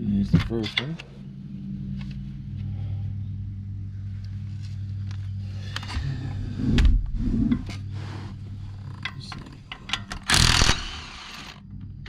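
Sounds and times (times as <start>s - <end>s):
low hum: 0.0s - 12.0s
metal clicks and clinks: 9.0s - 10.8s
air tool burst: 10.3s - 11.6s.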